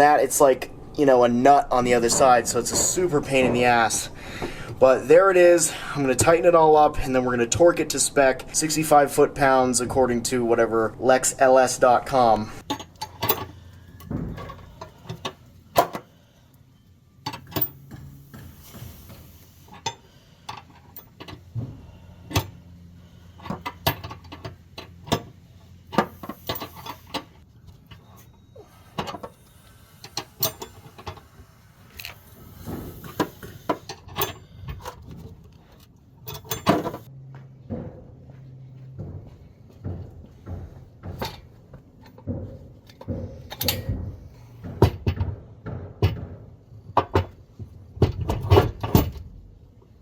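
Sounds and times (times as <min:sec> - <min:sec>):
loose hardware clinking: 0:25.9 - 0:35.0, 0:36.2 - 0:37.1.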